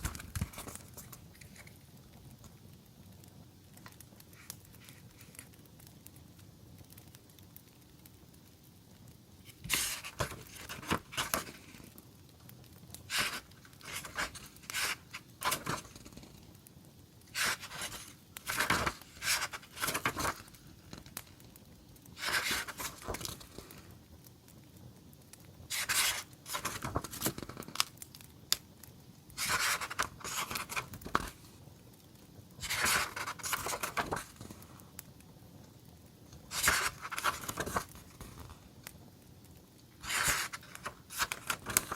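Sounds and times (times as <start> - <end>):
paper rustling and tearing: 0.0 - 1.7, 9.5 - 11.8, 13.1 - 16.3, 17.3 - 20.6, 22.2 - 23.6, 25.7 - 27.8, 29.4 - 31.4, 32.6 - 34.6, 36.5 - 38.6, 40.0 - 41.9.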